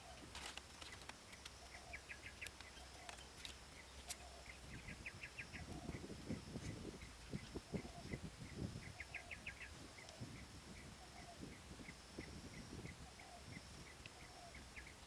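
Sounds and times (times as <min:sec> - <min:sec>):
high insect drone: 0:00.0 - 0:15.0
bird chirping: 0:00.8 - 0:15.0.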